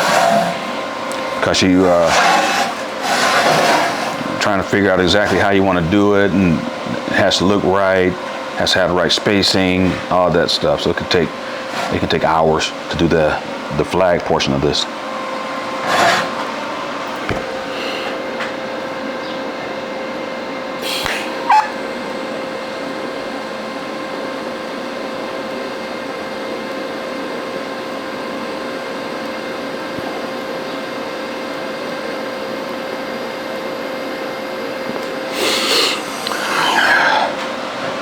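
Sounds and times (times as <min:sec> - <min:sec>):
welding arc buzzing hiss: 0:00.0 - 0:19.0, 0:20.6 - 0:23.9, 0:33.7 - 0:38.0.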